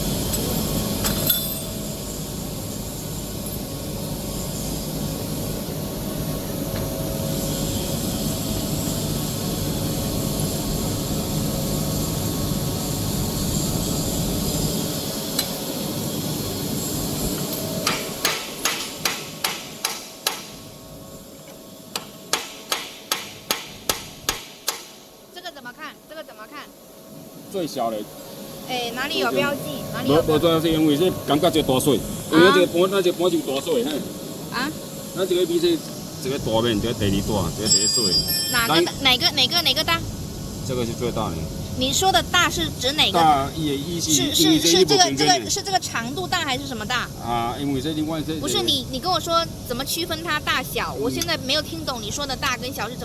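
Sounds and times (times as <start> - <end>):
machinery noise: 27.6 - 53.0.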